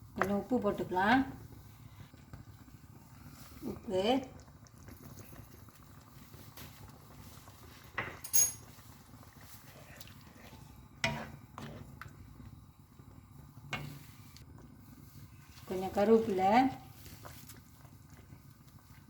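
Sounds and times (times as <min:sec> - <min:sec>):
metal spoon clinking on pot: 0:08.0 - 0:08.7.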